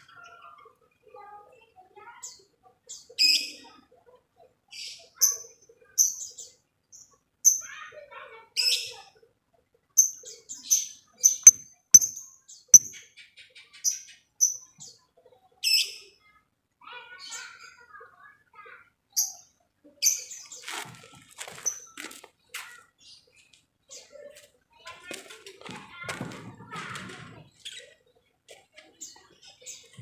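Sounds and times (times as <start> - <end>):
lovebirds high-pitched chirps: 4.7 - 7.8, 10.0 - 16.2, 19.1 - 20.7.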